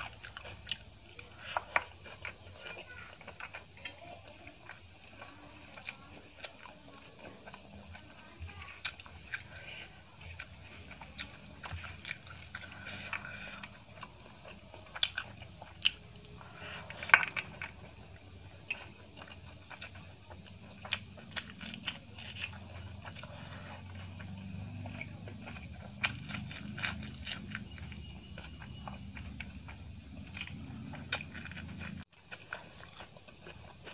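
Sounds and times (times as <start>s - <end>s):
person chewing and biting: 0.0s - 33.9s
crunchy mouth clicks: 4.6s - 33.9s.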